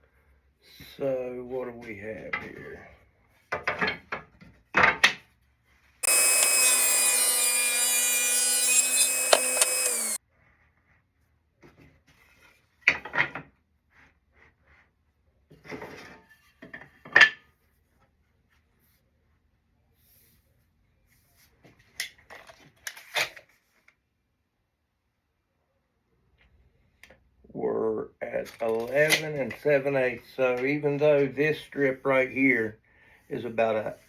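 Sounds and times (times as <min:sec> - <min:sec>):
woodworking power tool running: 0:06.0 - 0:10.2.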